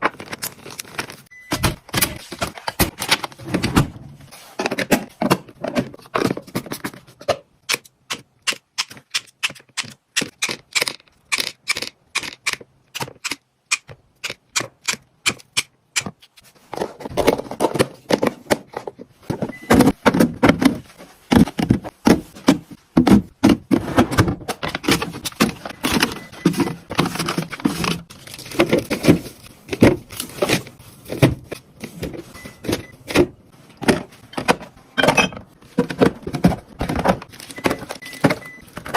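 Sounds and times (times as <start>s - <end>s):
packaged items clattering and rustling: 0.0s - 7.6s, 16.4s - 38.9s
plastic containers clicking and tapping: 24.6s - 38.9s.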